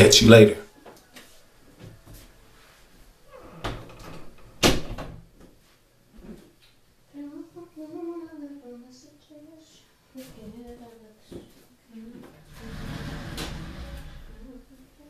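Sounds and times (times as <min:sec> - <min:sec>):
person speaking: 0:00.0 - 0:00.6.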